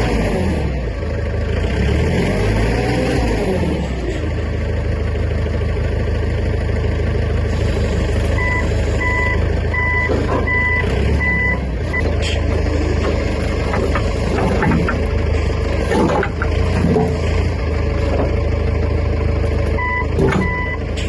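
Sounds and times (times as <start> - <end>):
vehicle engine running: 0.0 - 21.0
reversing alarm beeping: 8.4 - 12.1, 19.8 - 20.9.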